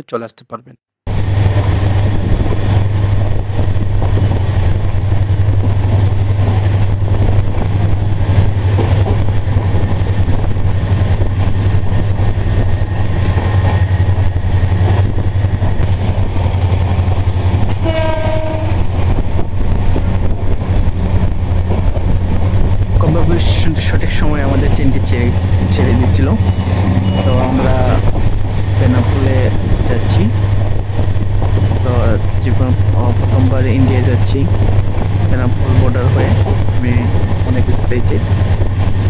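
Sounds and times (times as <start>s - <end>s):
low train engine hum: 1.1s - 39.0s
train horn blowing: 17.8s - 18.9s.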